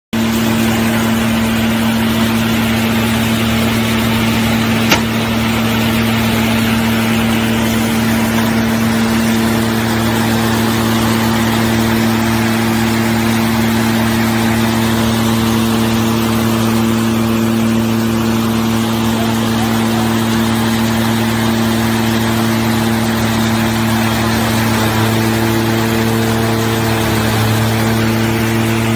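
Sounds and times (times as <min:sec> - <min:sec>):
hay baler running: 0:00.2 - 0:28.9
sharp click: 0:04.9 - 0:05.3.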